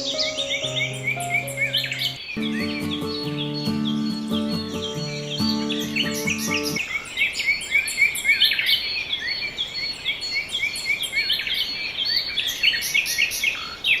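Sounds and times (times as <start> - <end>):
birds chirping and calling: 0.0 - 8.8.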